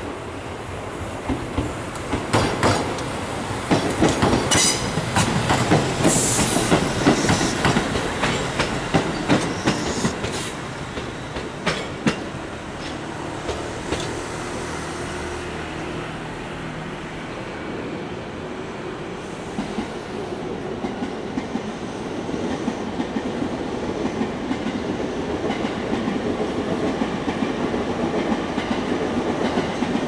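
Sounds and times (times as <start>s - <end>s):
train wheels clacking over rail joints: 1.3s - 3.1s, 3.7s - 14.2s.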